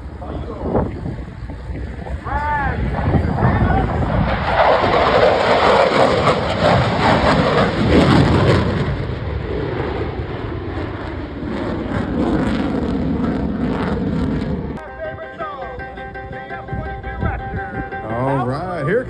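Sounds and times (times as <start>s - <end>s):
fighter jet flying past: 0.0s - 14.8s.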